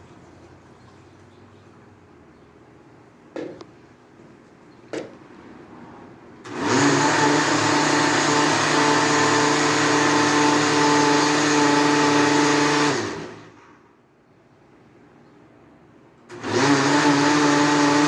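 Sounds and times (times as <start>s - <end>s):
blender motor whirring: 6.5s - 13.5s, 16.3s - 18.0s.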